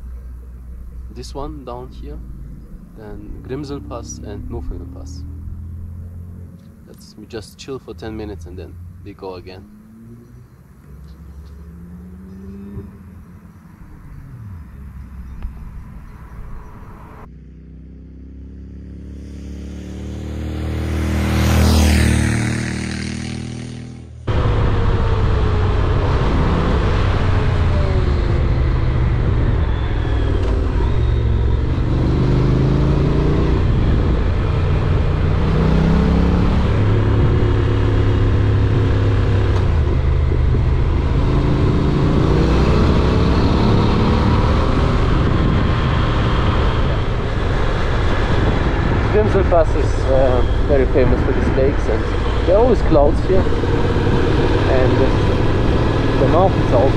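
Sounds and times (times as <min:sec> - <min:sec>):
motorcycle engine accelerating: 0:00.0 - 0:56.9
vehicle engine passing by: 0:00.0 - 0:56.9
wind rushing: 0:20.7 - 0:56.9.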